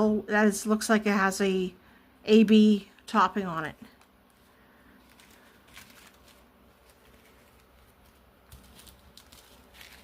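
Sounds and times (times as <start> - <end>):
faint handling rustles: 3.7 - 10.0.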